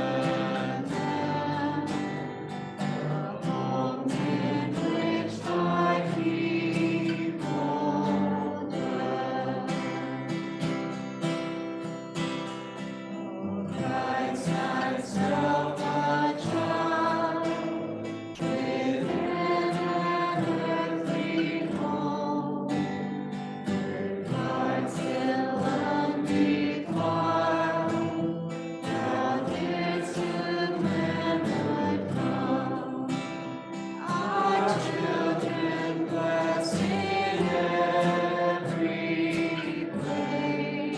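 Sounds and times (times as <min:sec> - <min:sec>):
congregation singing a hymn: 0:00.0 - 0:11.3, 0:13.1 - 0:40.9.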